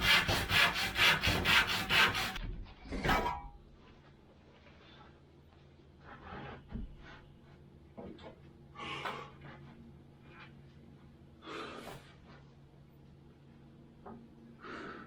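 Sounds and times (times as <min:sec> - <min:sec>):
low steady hum: 0:02.3 - 0:15.0
person breathing hard: 0:08.7 - 0:09.6, 0:11.4 - 0:12.2, 0:14.6 - 0:15.0.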